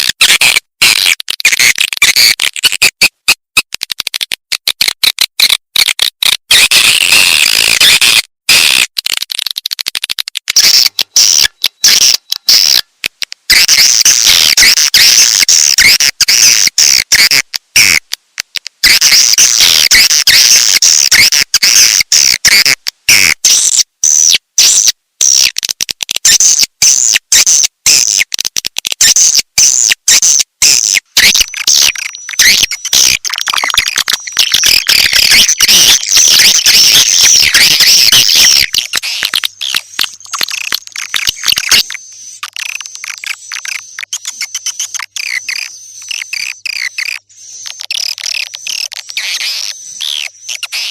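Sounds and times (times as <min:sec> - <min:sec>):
high twittering bird chirps: 0:29.2 - 0:50.9.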